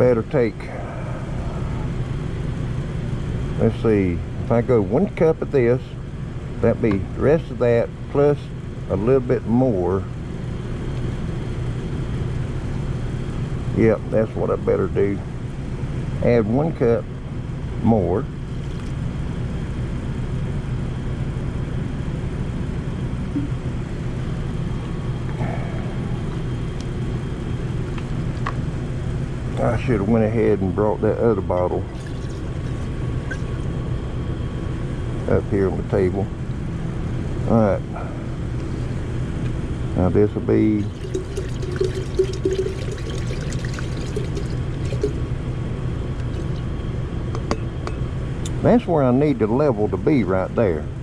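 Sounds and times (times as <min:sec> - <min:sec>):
low hum of machinery: 0:00.0 - 0:51.0
liquid pouring into container: 0:31.9 - 0:32.9, 0:40.8 - 0:45.2, 0:46.2 - 0:46.7.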